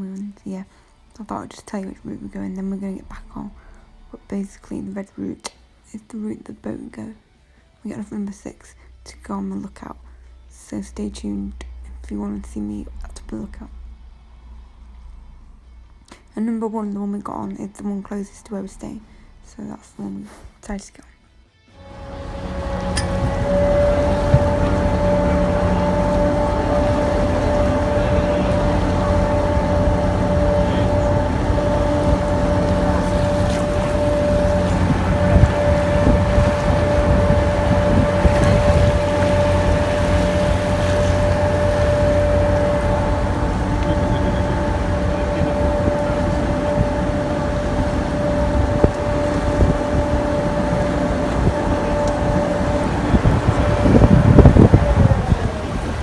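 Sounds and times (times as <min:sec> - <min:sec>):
boat engine droning: 0:21.8 - 0:56.0
wind buffeting microphone: 0:21.8 - 0:56.0.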